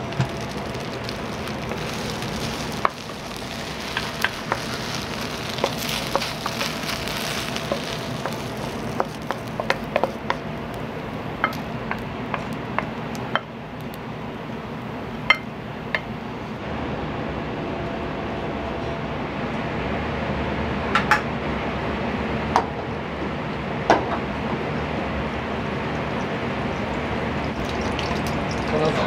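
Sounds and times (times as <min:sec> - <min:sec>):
food sizzling in oil: 0:00.0 - 0:16.2, 0:24.2 - 0:29.0
steady hum: 0:00.0 - 0:29.0.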